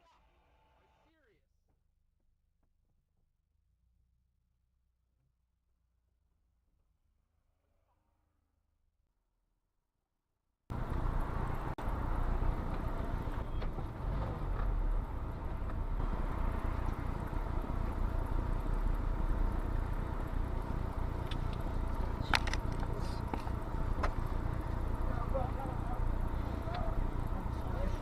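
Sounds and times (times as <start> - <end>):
car driving: 10.7 - 28.0.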